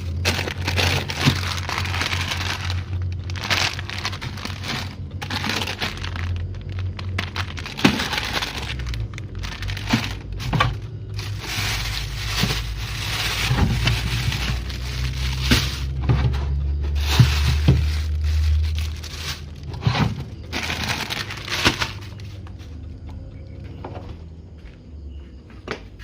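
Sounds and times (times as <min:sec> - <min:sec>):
plastic packaging crinkling: 0:00.0 - 0:22.6
low steady hum: 0:00.0 - 0:25.6.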